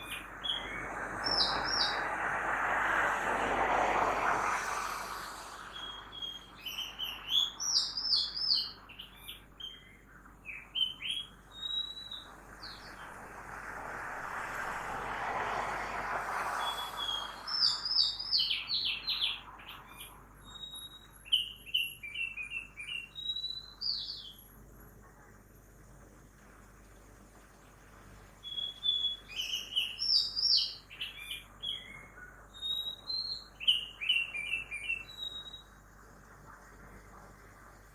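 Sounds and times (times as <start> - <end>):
songbird whistling and trilling: 0.0 - 2.1, 5.3 - 13.0, 16.6 - 24.4, 28.4 - 35.8
passing vehicle: 0.0 - 7.5, 12.3 - 19.5.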